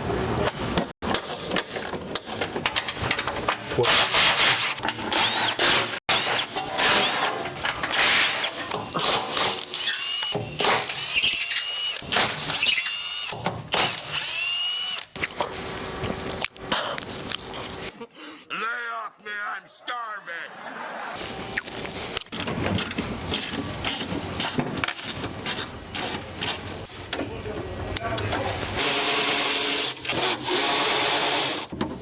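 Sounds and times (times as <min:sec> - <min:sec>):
power tools whining in bursts: 0:04.8 - 0:15.8.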